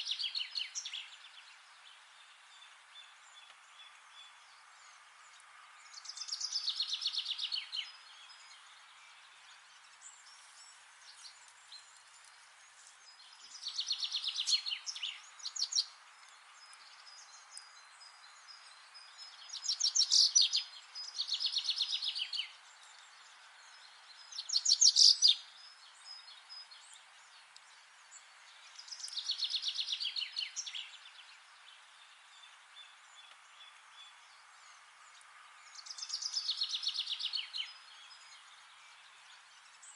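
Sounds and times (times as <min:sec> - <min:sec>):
songbird trilling: 0:19.4 - 0:22.5, 0:24.4 - 0:25.4.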